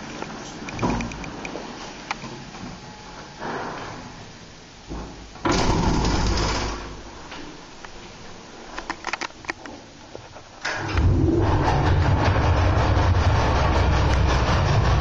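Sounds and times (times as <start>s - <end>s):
freight elevator running: 10.7s - 15.0s.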